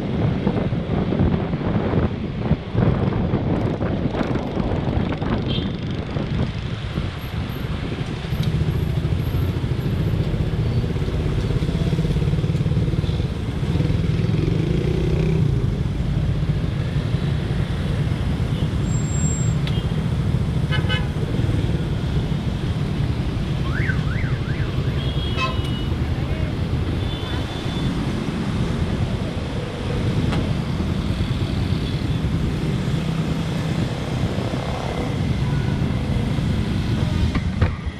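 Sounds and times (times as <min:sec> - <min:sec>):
road traffic: 0:00.0 - 0:37.9.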